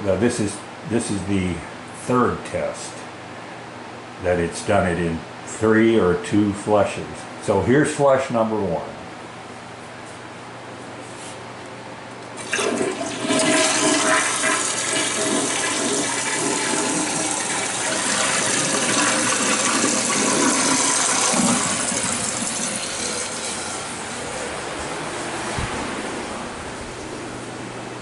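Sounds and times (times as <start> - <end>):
toilet flushing: 12.4 - 24.7.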